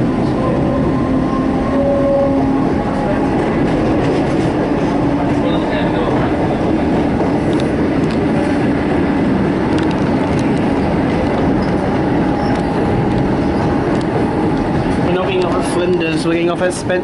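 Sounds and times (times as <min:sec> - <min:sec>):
train rumbling inside carriage: 0:00.0 - 0:17.0.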